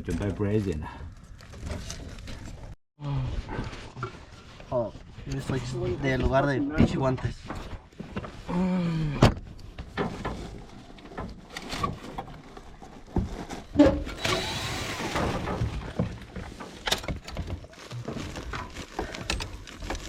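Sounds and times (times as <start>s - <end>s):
scraping or rustling: 9.7s - 20.0s
knocks and thuds of tools: 13.1s - 17.6s.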